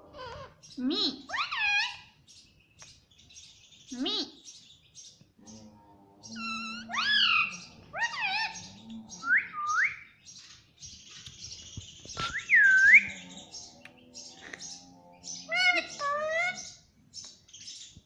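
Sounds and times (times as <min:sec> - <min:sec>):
parrot squawking: 0:00.0 - 0:02.1, 0:06.4 - 0:09.5, 0:14.3 - 0:16.8.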